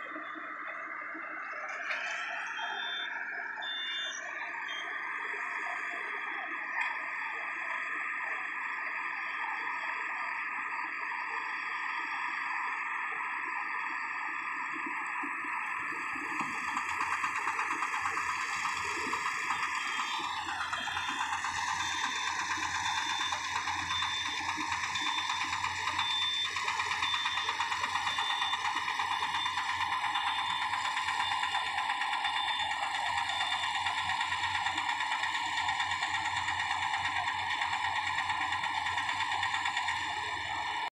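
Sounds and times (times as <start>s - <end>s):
small engine drone: 0.0s - 40.9s
reaper machine rattling: 16.5s - 40.8s.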